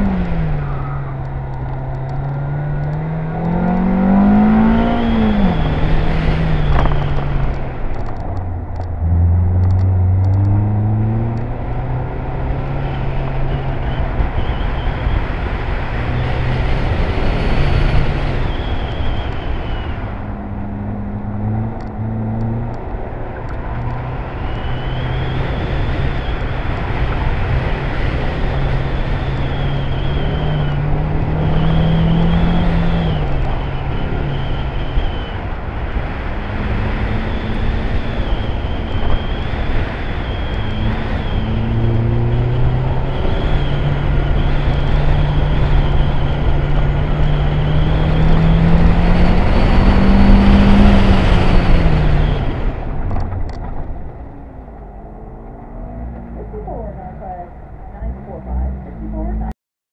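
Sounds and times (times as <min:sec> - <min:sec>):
car engine revving: 0:00.0 - 0:59.6
faint high squeal: 0:00.4 - 0:02.5, 0:17.5 - 0:20.3, 0:37.1 - 0:52.7.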